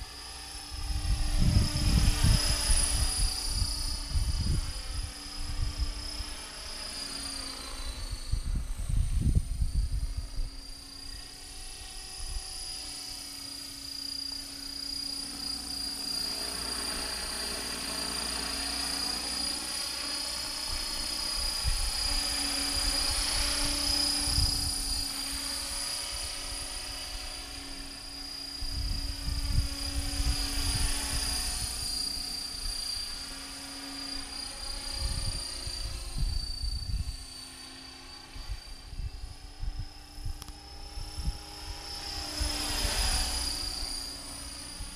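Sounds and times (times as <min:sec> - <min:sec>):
rc helicopter whine and rotor hum: 0:00.0 - 0:44.9
wind buffeting microphone: 0:00.7 - 0:06.2, 0:08.1 - 0:10.6, 0:28.6 - 0:31.8, 0:38.3 - 0:43.8.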